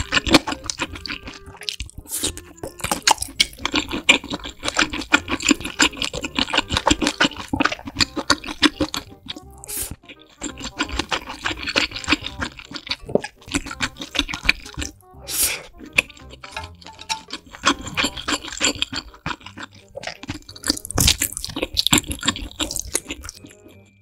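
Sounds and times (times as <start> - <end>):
crunchy wet chewing: 0.0 - 24.0.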